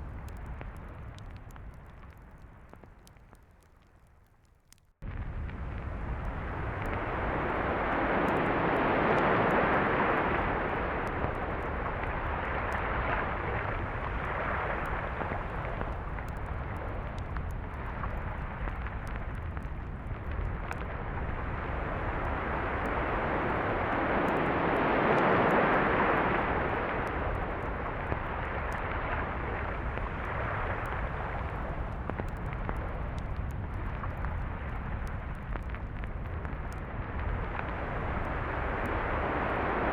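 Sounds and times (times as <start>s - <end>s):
sea waves washing onto beach: 6.6s - 20.6s, 21.4s - 35.3s, 37.7s - 39.9s.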